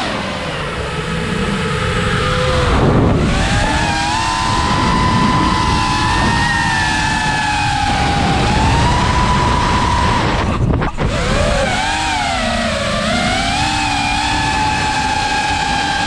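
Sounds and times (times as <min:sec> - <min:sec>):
drone motors whining: 0:00.0 - 0:16.0
wind rushing on microphone: 0:00.0 - 0:16.0.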